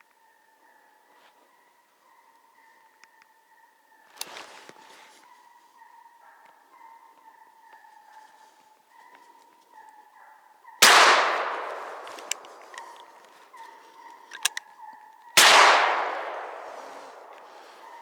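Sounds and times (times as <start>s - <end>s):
gunshots echoing: 10.8s - 13.3s, 15.4s - 18.0s.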